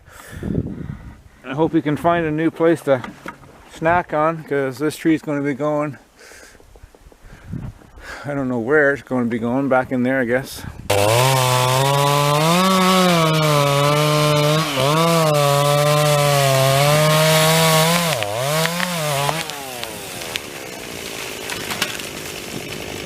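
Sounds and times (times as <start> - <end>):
chainsaw cutting wood: 10.9 - 23.0
wood cracking: 10.9 - 23.0.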